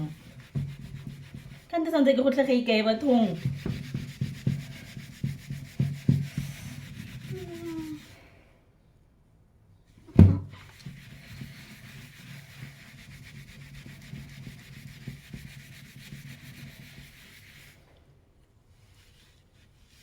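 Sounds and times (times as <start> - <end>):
hand scrubbing hard surface: 0.0 - 8.3, 10.5 - 18.0, 18.7 - 20.0.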